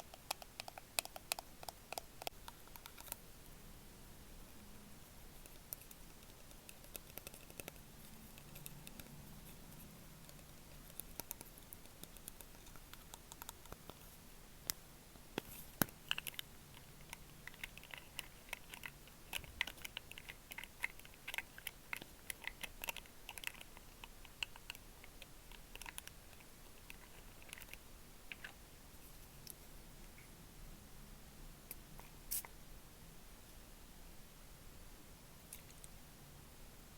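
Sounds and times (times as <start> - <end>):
fingertips tapping on hard object: 0.0 - 3.2.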